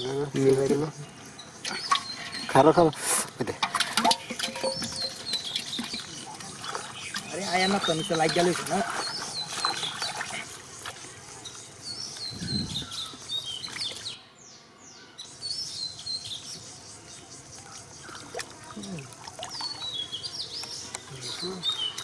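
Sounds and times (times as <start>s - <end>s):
songbird chirping: 0.0s - 3.0s, 3.8s - 22.0s
muddy water splashing: 3.6s - 11.8s, 17.6s - 22.0s.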